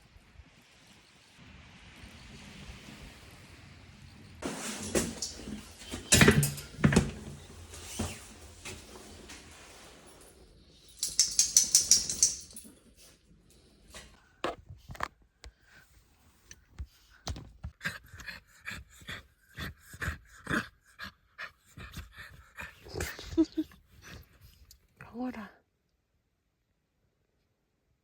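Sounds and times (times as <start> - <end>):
dry dog food rattling into bowl: 10.9 - 12.7.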